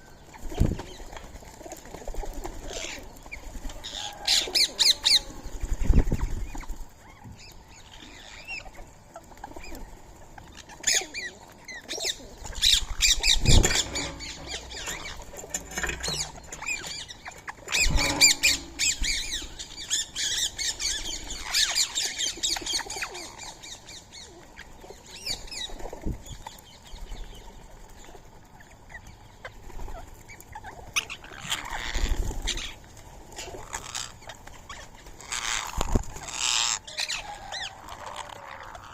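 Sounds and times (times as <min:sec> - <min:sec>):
wings flapping: 0:09.2 - 0:23.4
parakeets calling: 0:12.0 - 0:24.2.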